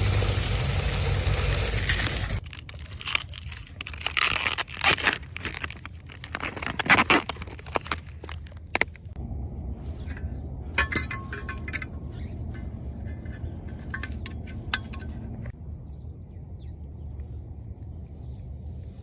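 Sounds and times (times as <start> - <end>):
steady low rumble: 7.5 - 19.0
wire bird feeder clinking: 10.0 - 15.6.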